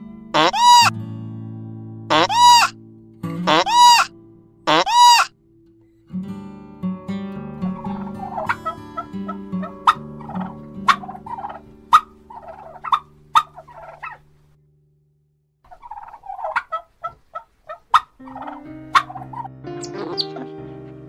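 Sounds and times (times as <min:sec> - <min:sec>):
poultry calling: 0:00.3 - 0:00.9, 0:02.1 - 0:02.7, 0:03.4 - 0:04.1, 0:04.7 - 0:05.3, 0:07.6 - 0:14.3, 0:15.7 - 0:20.5
soft background music: 0:06.8 - 0:14.0, 0:18.2 - 0:21.0.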